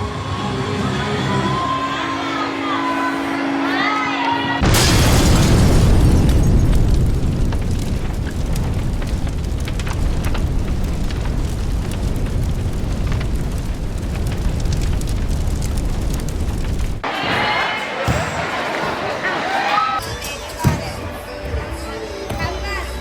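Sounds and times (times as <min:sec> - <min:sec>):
low rumble: 0:04.6 - 0:17.0.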